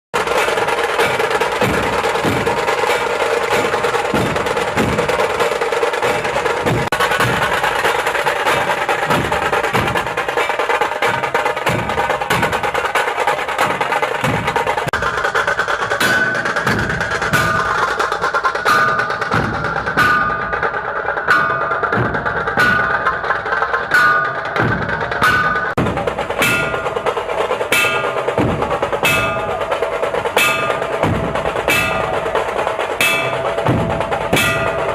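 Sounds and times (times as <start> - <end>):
music with percussion beat: 0.2 - 34.9
bell-like ringing tones: 20.0 - 25.8, 26.4 - 28.4, 29.0 - 34.9.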